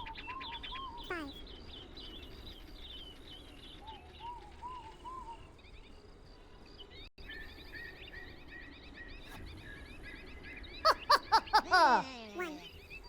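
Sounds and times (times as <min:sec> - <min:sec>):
birds chirping and calling: 0:09.1 - 0:13.0.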